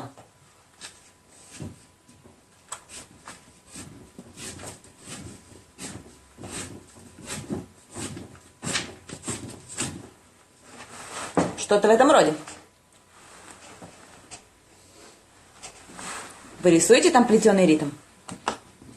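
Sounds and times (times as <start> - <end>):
drawing tool scratching on paper: 2.9 - 10.1.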